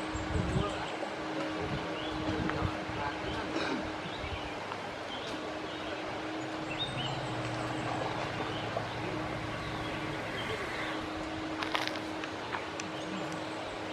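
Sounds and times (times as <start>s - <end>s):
steady wash of noise: 0.0s - 13.9s
low steady hum: 4.0s - 13.9s
bird chirps: 5.1s - 11.2s.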